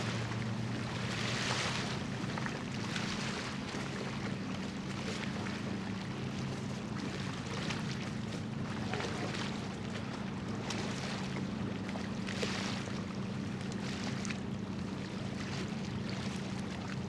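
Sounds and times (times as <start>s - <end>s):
ship engine drone: 0.0s - 17.0s.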